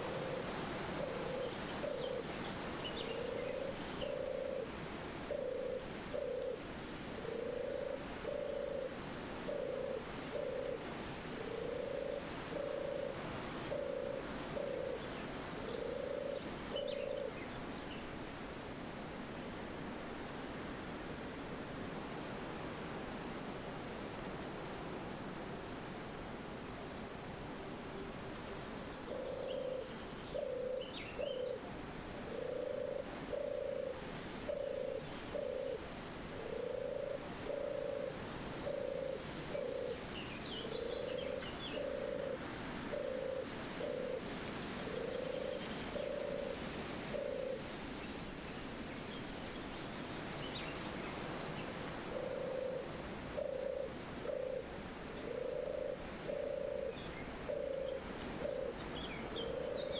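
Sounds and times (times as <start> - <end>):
dove cooing: 0.0 - 17.5, 29.1 - 48.0, 50.5 - 59.9
wind hiss: 0.0 - 59.9.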